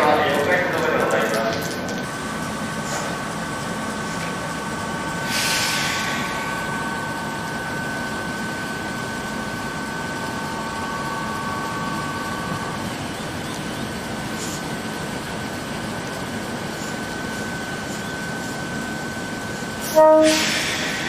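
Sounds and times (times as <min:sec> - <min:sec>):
steady hum: 0:00.0 - 0:21.0
train equipment whine: 0:00.0 - 0:21.0
air hiss: 0:05.2 - 0:06.7, 0:20.2 - 0:21.0.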